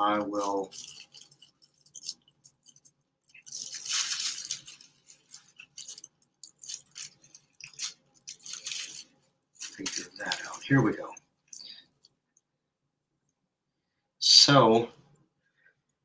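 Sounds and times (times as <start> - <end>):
twist tie crinkling: 0.1 - 12.2.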